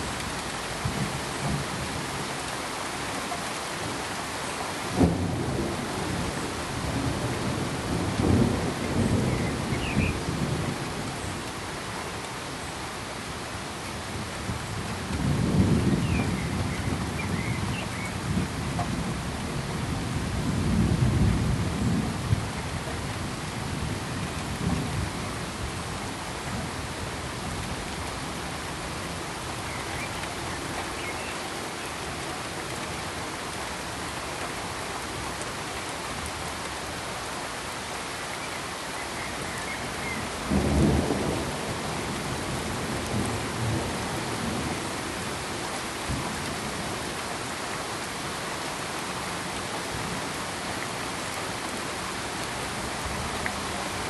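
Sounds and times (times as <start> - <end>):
rain hissing: 0.0 - 54.0
thunder rumbling: 40.2 - 44.8.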